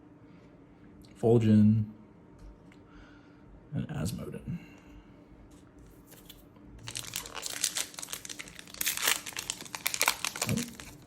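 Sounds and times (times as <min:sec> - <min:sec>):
wrapper crinkling and tearing: 0:06.8 - 0:11.0.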